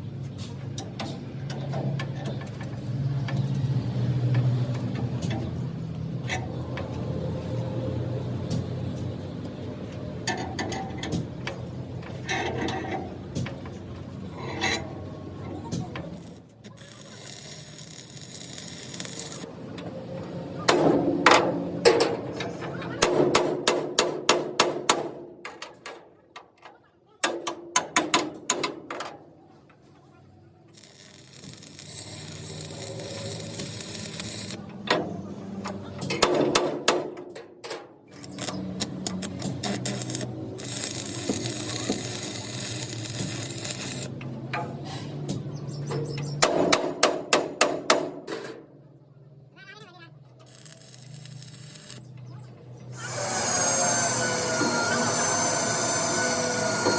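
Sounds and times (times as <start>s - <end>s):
hissing humming machine noise: 0.8s - 23.7s, 30.7s - 37.2s, 37.8s - 47.3s, 49.9s - 56.9s
metal clanks and knocks: 10.2s - 15.0s, 20.7s - 29.3s, 34.7s - 42.2s
metallic knocks and clanks: 20.7s - 29.2s.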